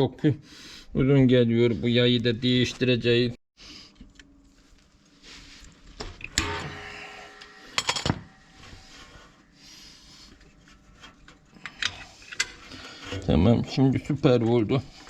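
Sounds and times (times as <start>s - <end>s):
metallic clank: 6.3s - 8.6s.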